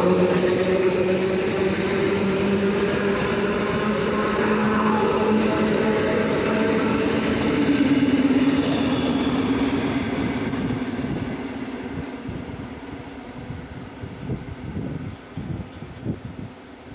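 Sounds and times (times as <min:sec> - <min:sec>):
train wheels rumbling on rails: 0:00.0 - 0:16.9.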